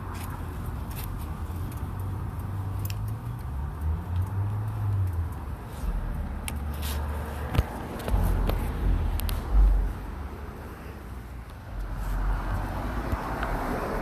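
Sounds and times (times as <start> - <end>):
motorcycle engine rumbling: 4.7 - 14.0.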